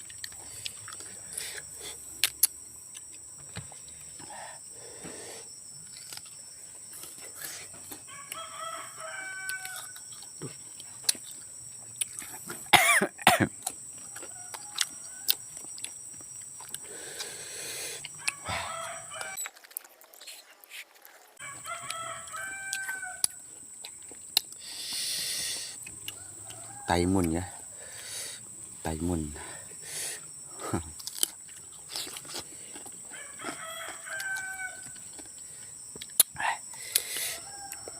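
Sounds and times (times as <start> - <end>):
crunchy fruit being chewed: 0.0 - 37.9
rooster crowing: 8.0 - 10.2, 14.0 - 15.7, 18.0 - 19.4, 21.4 - 23.4, 26.1 - 28.0, 33.0 - 35.2, 37.1 - 37.9.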